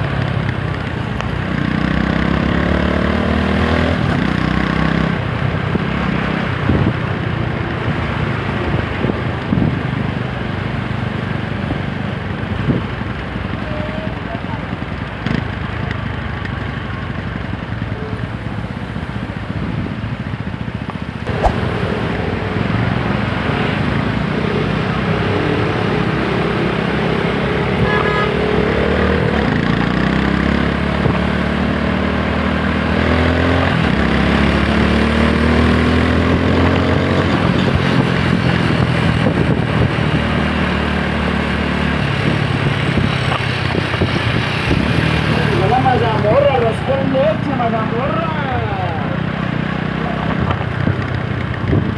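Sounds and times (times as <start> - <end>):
motorcycle engine accelerating: 0.0 - 9.7, 21.0 - 51.9.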